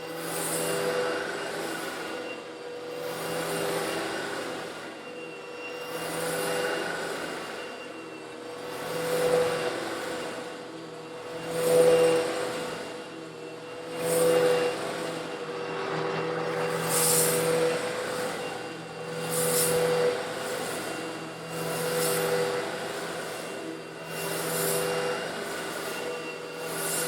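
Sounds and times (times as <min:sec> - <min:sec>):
vacuum cleaner running: 0:00.0 - 0:27.0
vacuum sucking up stone granules: 0:05.6 - 0:27.0.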